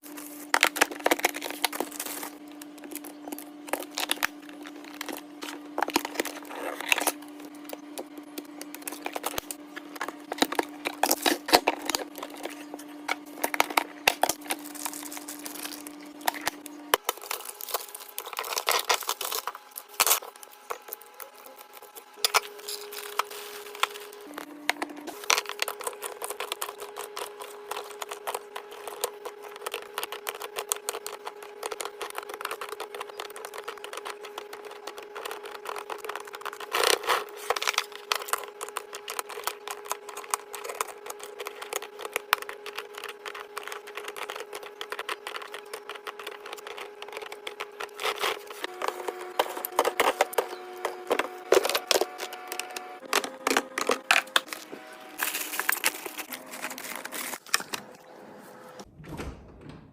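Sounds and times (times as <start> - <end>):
steady hum: 0.0 - 59.9
containers clicking and clattering: 21.6 - 57.9.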